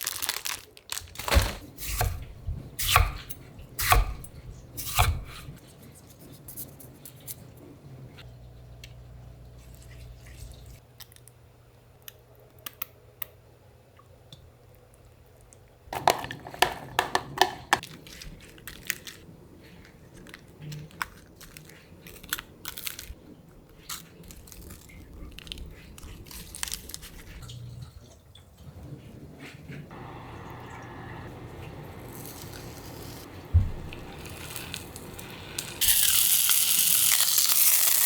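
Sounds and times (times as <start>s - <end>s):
clicks and taps: 16.0s - 17.8s.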